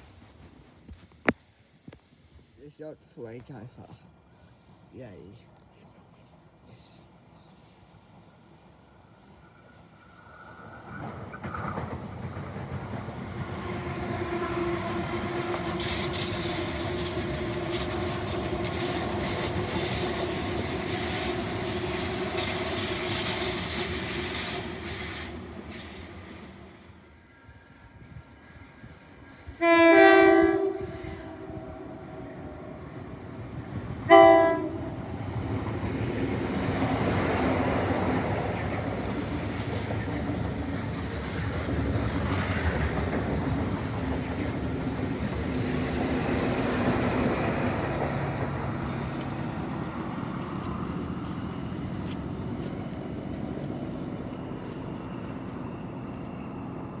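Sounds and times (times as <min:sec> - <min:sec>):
train running on rails: 0:00.0 - 0:57.0
train horn blasts: 0:13.5 - 0:20.3, 0:29.6 - 0:32.5, 0:34.0 - 0:35.0
high hiss: 0:15.8 - 0:27.3.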